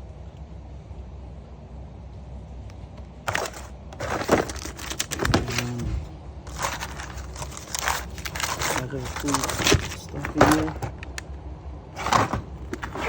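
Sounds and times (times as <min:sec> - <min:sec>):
low background hum: 0:00.0 - 0:13.0
knocks clatter and rustling: 0:03.3 - 0:11.2, 0:12.0 - 0:13.0.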